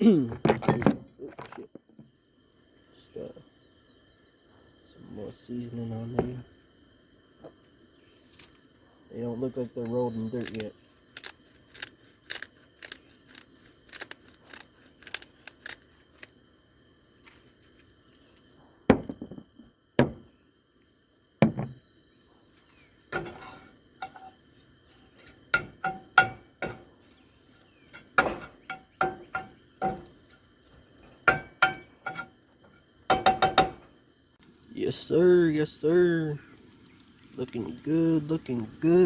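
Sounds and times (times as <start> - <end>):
spatula scraping frying pan: 22.7 - 32.4.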